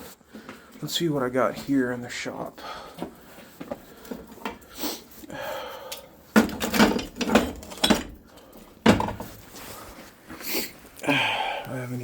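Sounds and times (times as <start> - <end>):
hard objects clattering and clinking: 5.9 - 9.7
soft rustling: 9.2 - 11.0.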